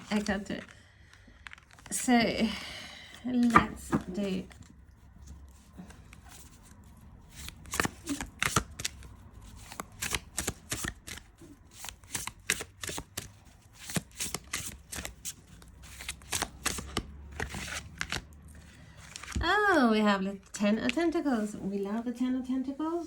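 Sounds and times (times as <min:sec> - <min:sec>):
cards being shuffled: 0:03.4 - 0:19.4.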